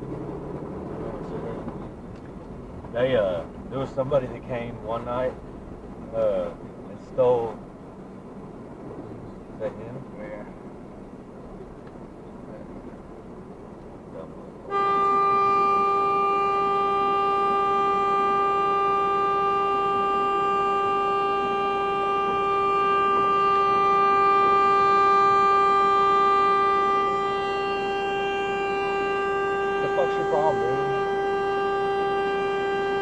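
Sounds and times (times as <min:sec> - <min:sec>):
low road noise: 0:00.0 - 0:33.0
vehicle horn long blast: 0:14.7 - 0:33.0.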